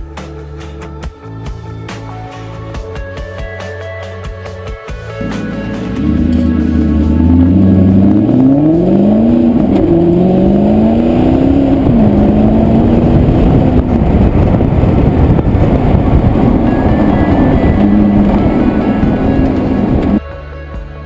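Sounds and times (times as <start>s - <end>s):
car engine accelerating: 5.2s - 20.2s
wind and road noise: 5.2s - 20.2s.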